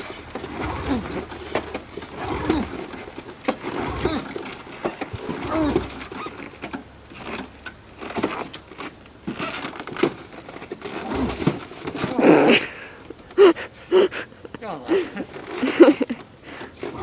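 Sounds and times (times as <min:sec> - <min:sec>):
pull-start rope rasping: 0:00.0 - 0:09.7, 0:10.8 - 0:12.7, 0:13.4 - 0:17.0
person grunting and breathing hard: 0:02.2 - 0:02.8, 0:12.1 - 0:15.3.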